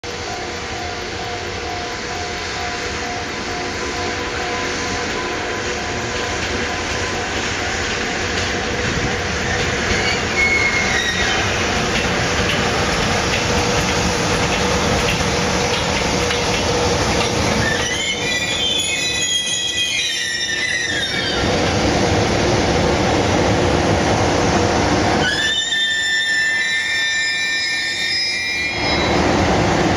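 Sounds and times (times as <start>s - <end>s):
freight train rumbling: 0.0s - 29.9s
high-pitched wheel squeals: 9.9s - 11.5s, 17.5s - 21.4s, 25.2s - 29.2s.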